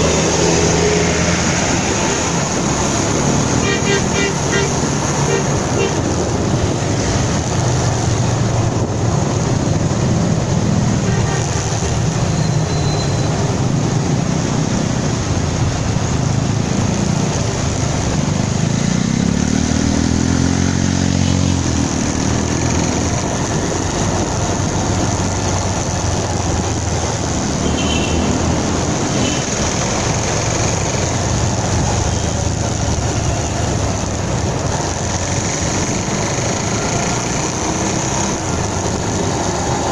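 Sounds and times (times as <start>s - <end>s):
engine revving: 0.0s - 6.2s, 18.1s - 24.6s
motorcycle engine: 0.0s - 39.9s
road noise: 0.0s - 39.9s
wind noise: 1.6s - 12.6s.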